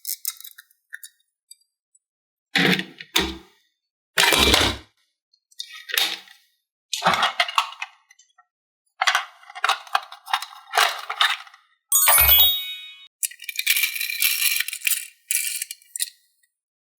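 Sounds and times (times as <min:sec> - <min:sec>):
chime-like ringing: 0:11.9 - 0:13.1
toy pieces clinking and rattling: 0:11.9 - 0:16.2.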